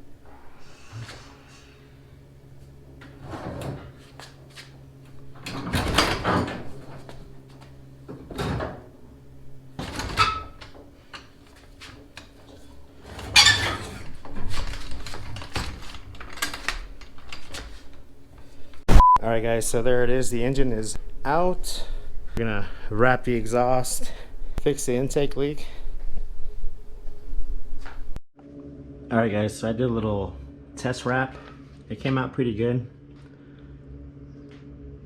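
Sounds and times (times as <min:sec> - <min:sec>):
steady low hum: 0:00.0 - 0:35.0
metal parts clunking and scraping: 0:05.2 - 0:08.9, 0:09.8 - 0:18.8.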